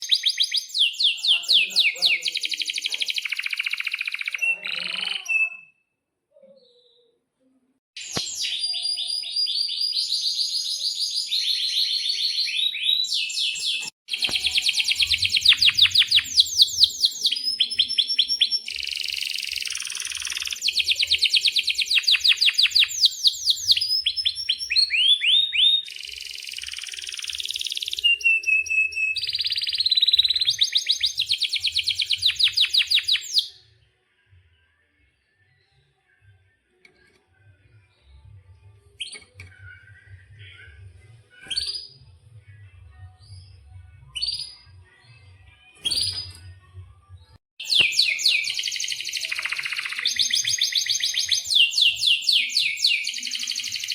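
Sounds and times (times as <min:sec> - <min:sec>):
canary singing trills: 0:00.0 - 0:05.8, 0:08.0 - 0:33.6, 0:47.6 - 0:53.9.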